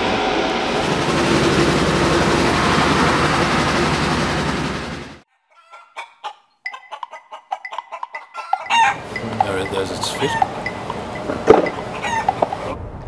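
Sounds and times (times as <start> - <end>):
road vehicle noise: 0.0 - 5.2, 8.6 - 13.0
chickens clucking: 5.5 - 12.8.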